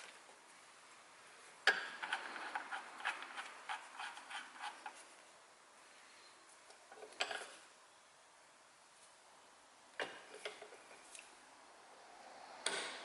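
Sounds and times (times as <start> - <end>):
metal parts clicking and scraping: 1.7 - 5.0.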